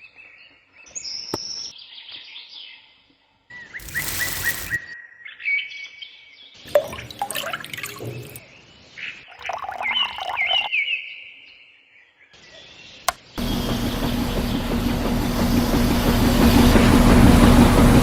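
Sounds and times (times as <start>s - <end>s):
birds chirping: 6.8s - 10.7s.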